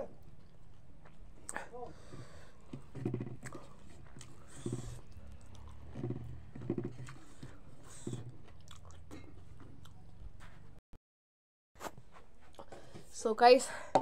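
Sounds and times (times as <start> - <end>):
person chewing food: 0.2 - 10.8.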